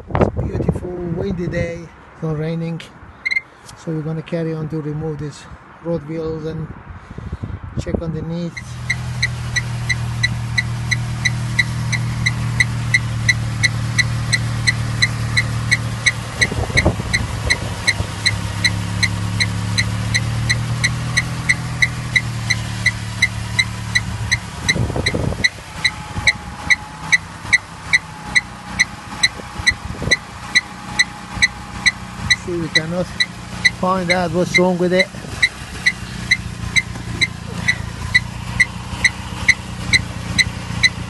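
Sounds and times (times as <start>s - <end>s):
car engine humming: 0.0s - 7.2s, 8.0s - 41.0s
short high-pitched chirps: 3.2s - 3.5s.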